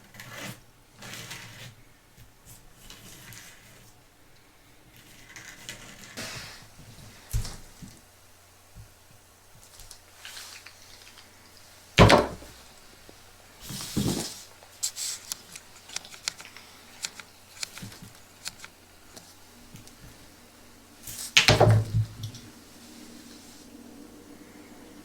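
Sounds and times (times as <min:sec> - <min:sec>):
plastic objects knocking: 0:12.0 - 0:12.7.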